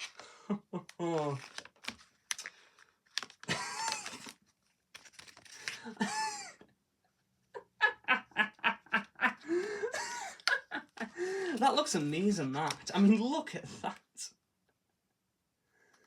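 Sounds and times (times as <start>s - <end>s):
man laughing: 3.5s - 4.2s, 5.9s - 6.6s, 7.6s - 11.6s, 13.6s - 14.2s.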